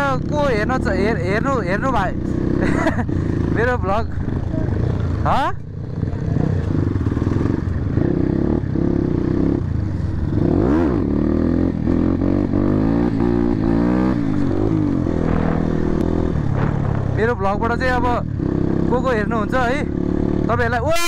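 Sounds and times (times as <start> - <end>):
motorcycle engines running: 0.0 - 21.0.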